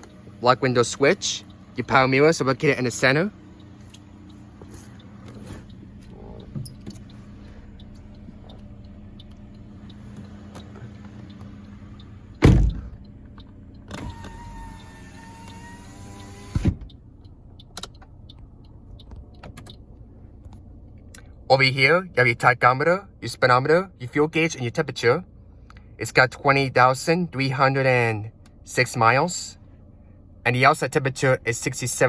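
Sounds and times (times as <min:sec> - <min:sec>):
steady low hum: 0:00.0 - 0:24.0
power window motor whine: 0:03.4 - 0:17.2
loud thump: 0:12.4 - 0:13.0
window glass thump: 0:12.4 - 0:13.0.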